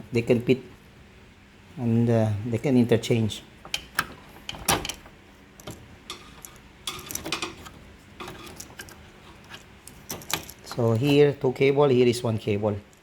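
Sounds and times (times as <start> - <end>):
plastic connectors clicking and rattling: 5.6 - 11.2.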